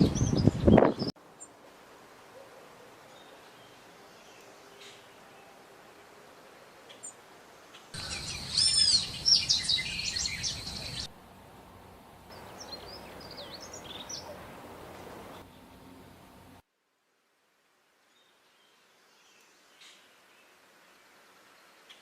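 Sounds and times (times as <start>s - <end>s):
small birds chirping: 6.9s - 11.1s, 12.3s - 14.6s.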